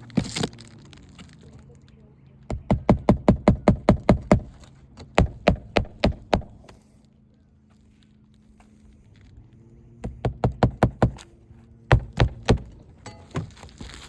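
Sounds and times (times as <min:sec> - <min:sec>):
hammer driving nails: 0:02.5 - 0:06.8, 0:10.0 - 0:11.3, 0:11.9 - 0:13.7.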